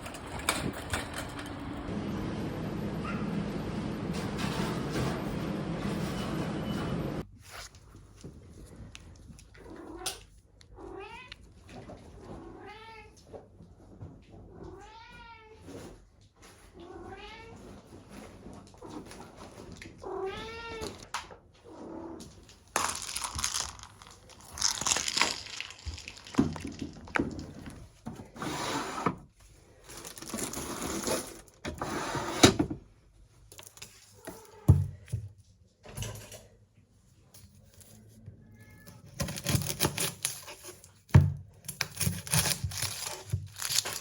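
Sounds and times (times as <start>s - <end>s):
cat meowing: 20.0s - 21.0s, 38.3s - 39.2s
rustling and handling noises: 22.2s - 28.5s, 29.3s - 31.6s, 33.2s - 44.0s.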